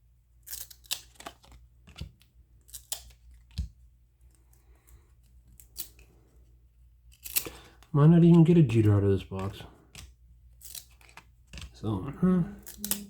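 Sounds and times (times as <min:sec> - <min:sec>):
trading cards snapping: 0:00.4 - 0:03.8, 0:05.5 - 0:06.1, 0:07.1 - 0:11.8, 0:12.6 - 0:13.0
cards rustling: 0:00.4 - 0:13.0.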